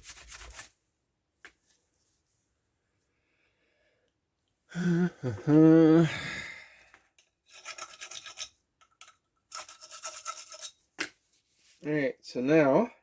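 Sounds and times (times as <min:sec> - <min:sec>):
rag scrubbing metal parts: 0:07.2 - 0:11.2.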